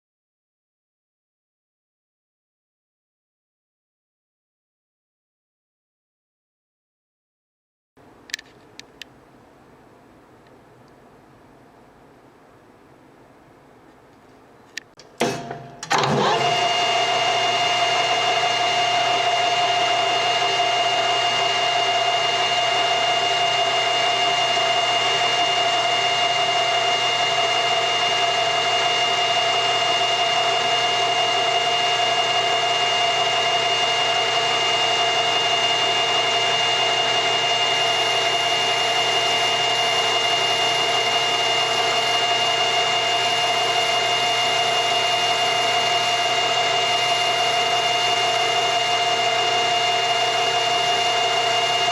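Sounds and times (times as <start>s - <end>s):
lathe spindle whine: 15.3s - 51.9s.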